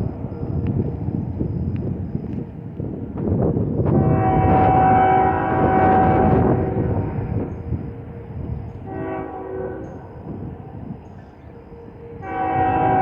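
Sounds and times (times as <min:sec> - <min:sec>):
train rumble: 0:00.0 - 0:13.0
locomotive air horn: 0:03.9 - 0:10.9, 0:11.5 - 0:13.0.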